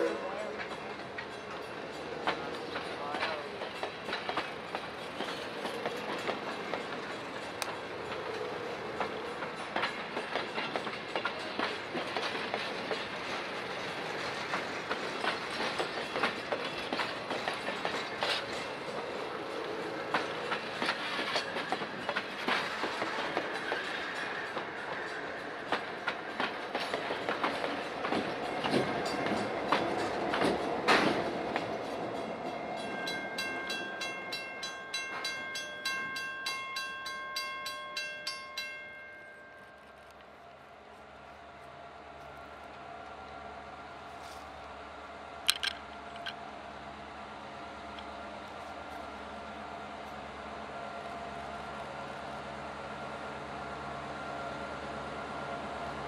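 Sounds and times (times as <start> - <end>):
train wheels clickety-clack: 0.0 - 36.2, 45.4 - 46.5
diesel locomotive passing: 0.0 - 56.0.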